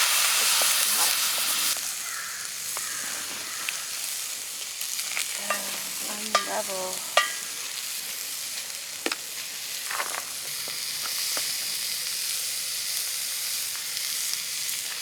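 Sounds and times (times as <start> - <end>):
food sizzling in a hot pan: 0.0 - 15.0.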